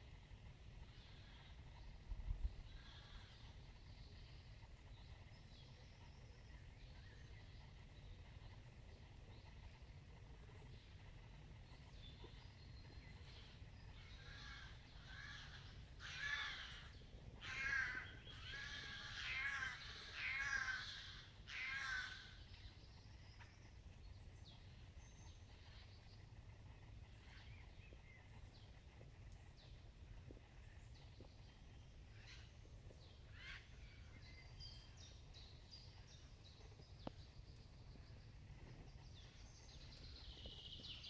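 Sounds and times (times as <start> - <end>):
bird harsh calls: 14.0 - 22.4.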